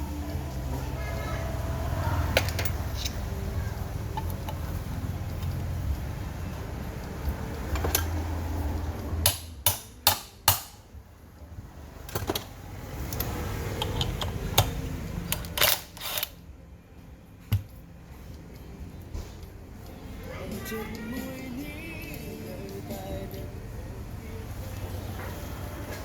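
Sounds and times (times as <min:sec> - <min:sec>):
tools clicking and knocking: 0:07.6 - 0:08.2, 0:09.2 - 0:10.9, 0:12.0 - 0:12.5, 0:13.1 - 0:16.4.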